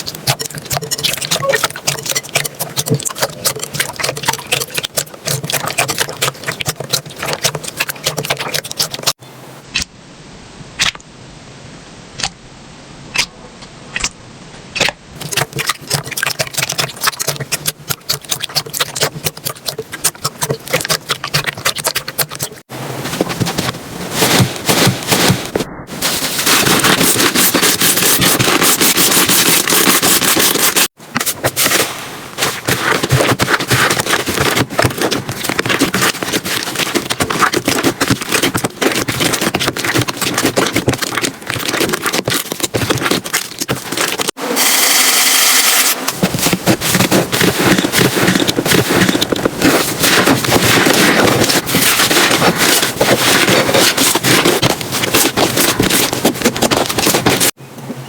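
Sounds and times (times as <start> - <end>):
slime crackling and popping: 0.0 - 9.2, 14.8 - 22.6, 32.4 - 44.4.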